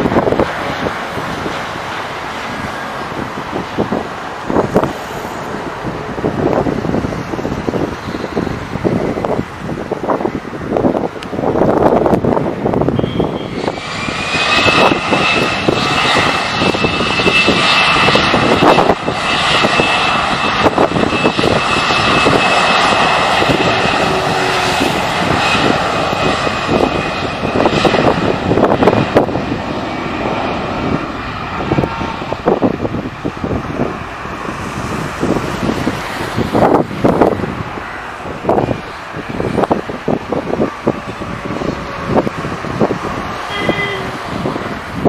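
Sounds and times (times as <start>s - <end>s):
jet engines roaring: 0.0s - 45.0s
steady high whine: 0.0s - 45.0s.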